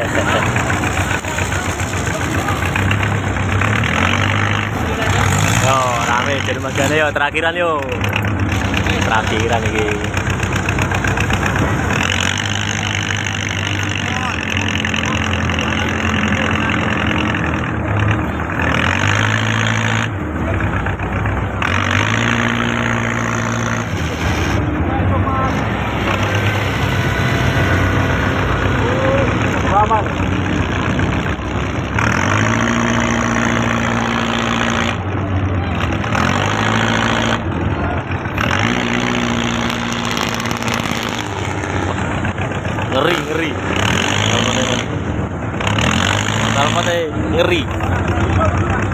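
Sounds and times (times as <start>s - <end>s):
boat engine running: 0.0s - 48.9s
broad rushing noise: 21.7s - 48.9s.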